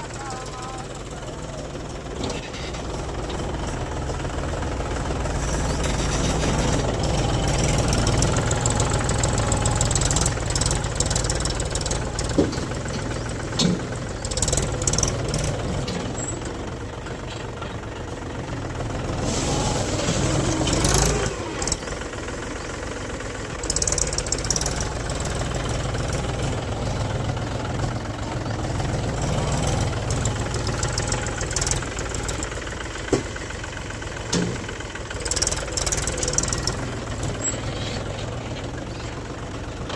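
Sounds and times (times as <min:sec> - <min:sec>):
tractor diesel engine running: 0:00.0 - 0:39.9
short knocks and clanks: 0:12.2 - 0:14.0.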